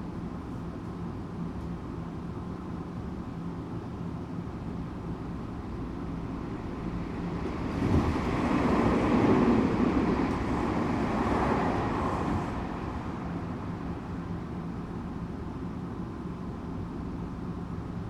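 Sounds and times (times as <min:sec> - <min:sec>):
electric train rumbling: 0:05.5 - 0:15.6.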